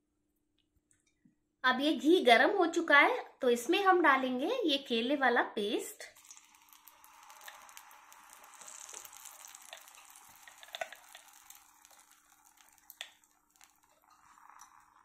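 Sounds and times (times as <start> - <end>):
paste sizzling in hot oil: 6.1 - 15.0.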